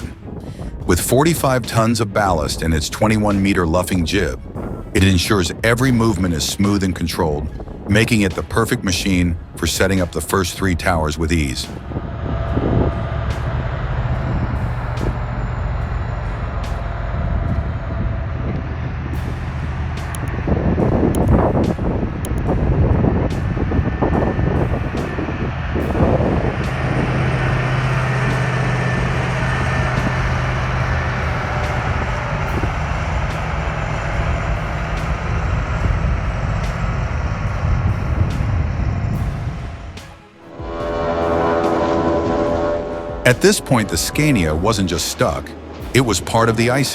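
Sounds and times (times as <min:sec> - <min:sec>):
diesel engine droning: 0:00.0 - 0:46.9
rough mechanical noise: 0:11.2 - 0:39.6
faint clicks: 0:20.0 - 0:20.3.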